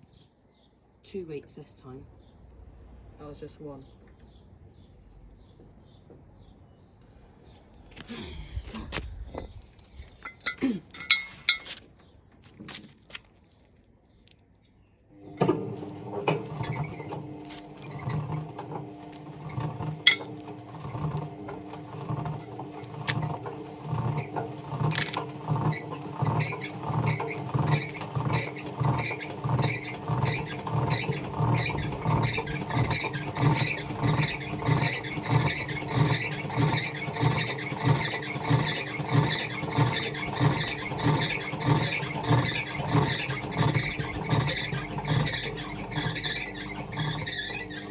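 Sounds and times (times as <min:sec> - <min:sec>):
washing machine motor hum: 0:15.1 - 0:47.9
rhythmic squeaking and knocking: 0:19.4 - 0:47.9.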